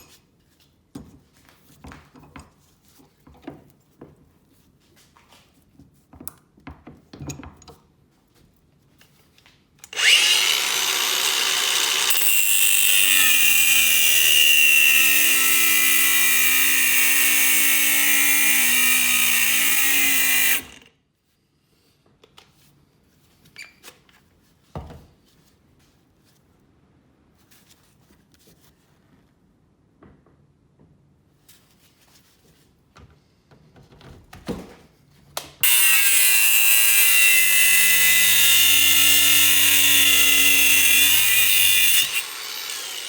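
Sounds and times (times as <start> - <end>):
handheld power tool running: 9.8 - 20.9, 35.6 - 43.0.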